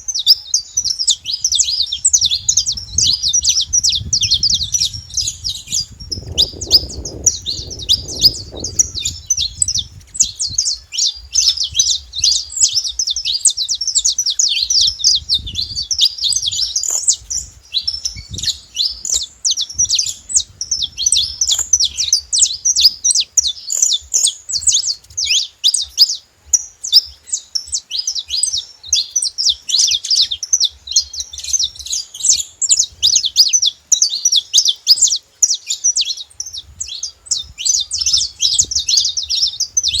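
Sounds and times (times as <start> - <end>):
finches chirping and trilling: 0.0 - 40.0.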